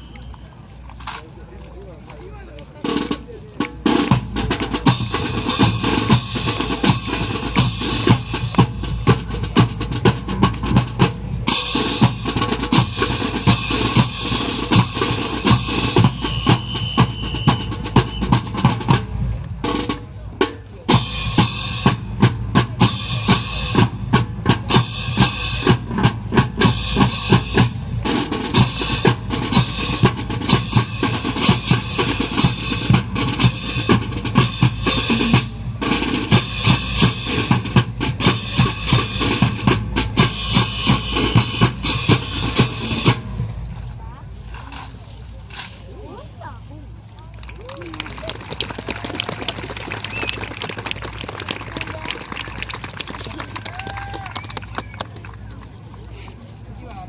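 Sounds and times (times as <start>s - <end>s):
drum kit beat: 2.8s - 43.6s.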